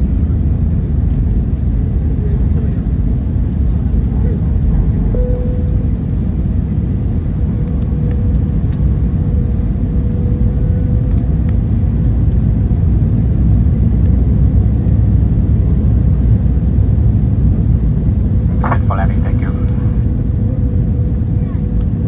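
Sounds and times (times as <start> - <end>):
airplane cabin rumble: 0.0 - 22.0
light ticks: 11.1 - 12.4
faint steady hum: 17.4 - 22.0.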